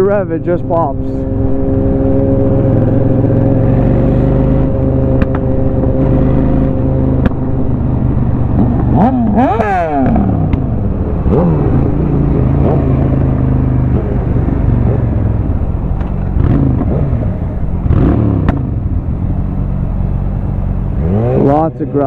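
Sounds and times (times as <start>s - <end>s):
motorcycle engine revving: 0.0s - 22.0s
exhaust pops: 5.1s - 7.5s, 8.5s - 19.9s.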